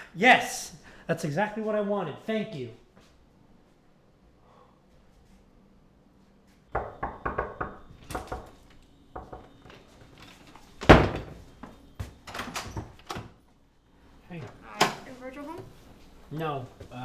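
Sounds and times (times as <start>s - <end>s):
knocks and thuds at a door: 6.7s - 9.8s, 10.8s - 13.3s.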